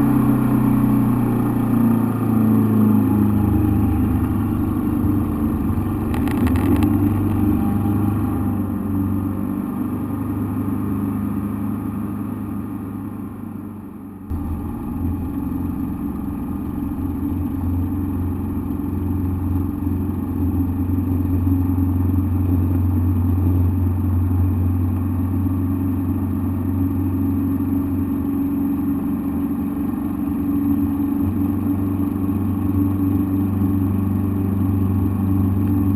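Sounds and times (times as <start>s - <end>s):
engine drone in cockpit: 0.0s - 35.9s.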